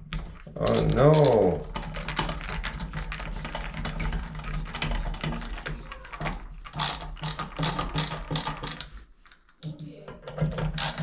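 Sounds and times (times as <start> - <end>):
ratcheting clicks: 0.6 - 1.4.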